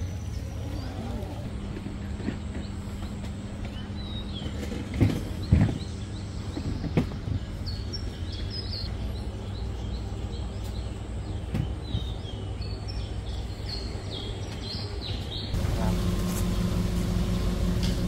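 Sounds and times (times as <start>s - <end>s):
birds chirping: 0.0s - 18.0s
low rumble: 15.6s - 18.0s.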